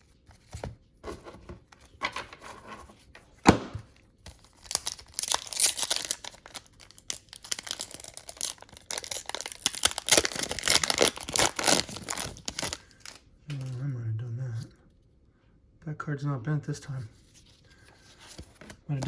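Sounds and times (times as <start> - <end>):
wrapper tearing and crinkling: 4.3 - 13.2.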